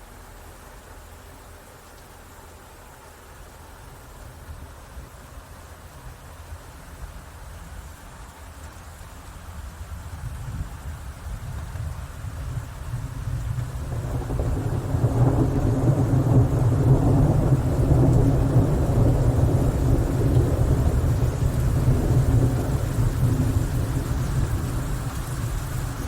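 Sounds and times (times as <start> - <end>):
rain hissing: 0.0 - 26.0
rolling thunder: 11.6 - 26.0.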